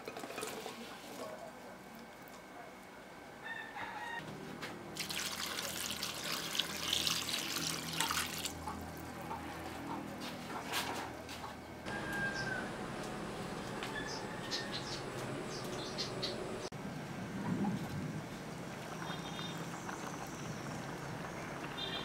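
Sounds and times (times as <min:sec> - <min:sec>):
water drips and splashes: 0:04.9 - 0:08.8
water pouring into metal pot: 0:05.0 - 0:08.6.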